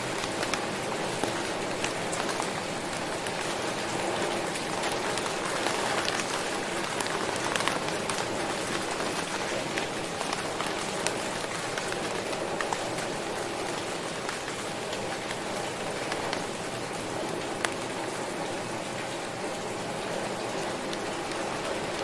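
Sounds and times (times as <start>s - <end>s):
raindrops ticking: 0.0s - 22.0s
steady rain falling: 0.0s - 22.0s.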